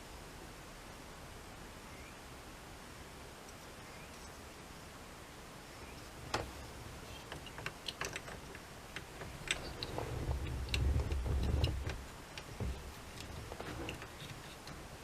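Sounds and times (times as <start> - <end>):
low rumbling handling noise: 6.1 - 15.0
light clicks and taps: 6.3 - 14.9.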